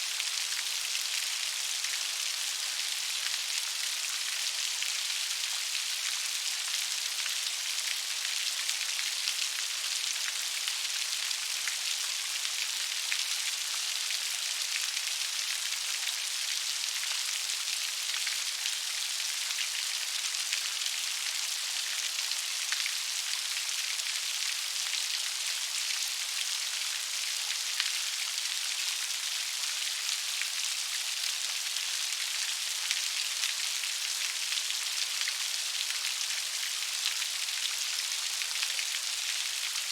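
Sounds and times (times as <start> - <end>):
gentle rain pattering: 0.0 - 39.9.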